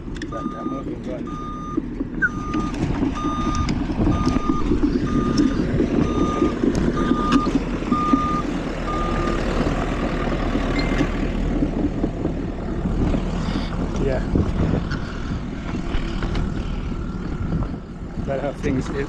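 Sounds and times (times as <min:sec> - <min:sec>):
low engine rumble: 0:00.0 - 0:19.0
reversing alarm beeping: 0:00.3 - 0:09.4.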